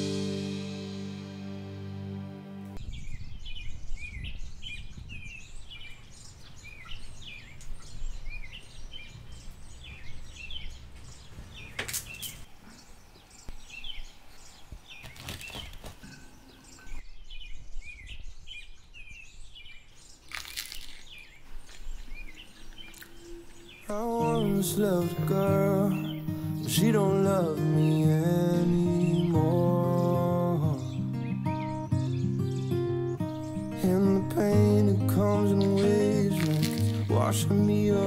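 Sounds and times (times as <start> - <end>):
songbirds chirping and singing: 2.8 - 38.0
brief sharp noises: 35.5 - 37.3.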